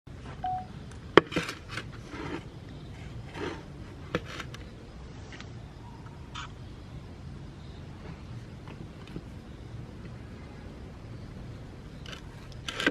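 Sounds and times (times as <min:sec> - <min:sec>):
rustling scrapes: 0:01.3 - 0:04.6.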